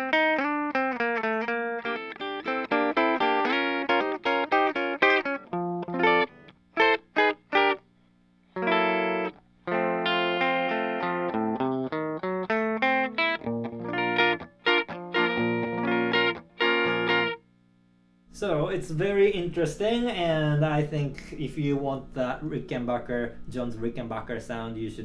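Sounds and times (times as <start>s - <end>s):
electric guitar playing: 0.0s - 7.9s, 8.5s - 17.4s.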